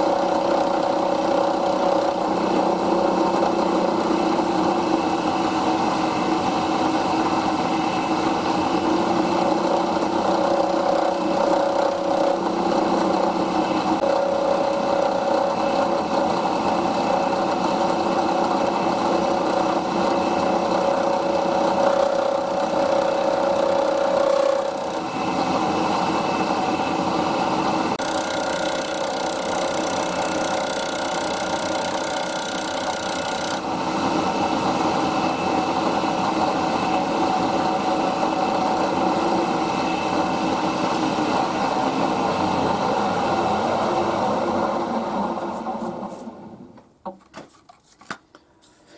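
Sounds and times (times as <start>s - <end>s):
milling machine hum: 0.0s - 46.6s
cutter scraping metal: 7.9s - 27.2s, 28.0s - 34.4s.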